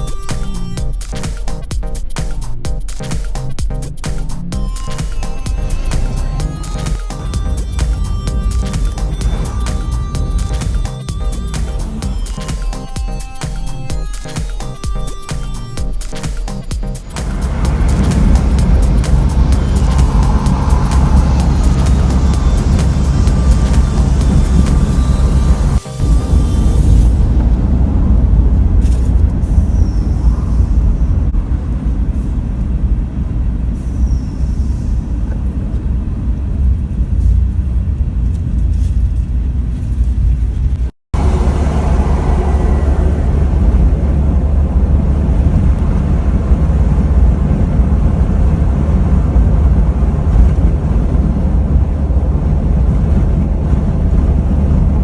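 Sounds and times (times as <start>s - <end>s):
vehicle engine and road noise: 17.1s - 29.8s, 35.0s - 55.0s.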